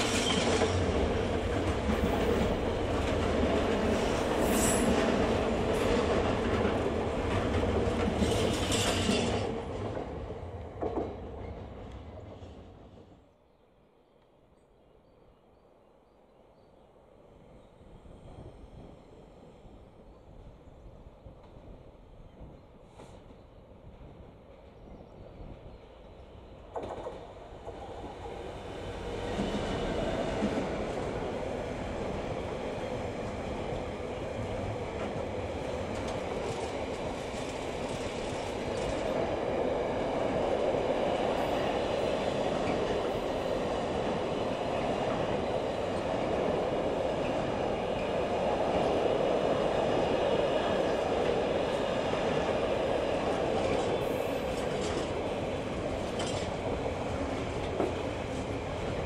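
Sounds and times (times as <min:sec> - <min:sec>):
wheels rolling on rail: 0:00.0 - 0:13.2, 0:26.6 - 0:59.0
diesel locomotive passing: 0:00.0 - 0:13.3, 0:26.7 - 0:59.0.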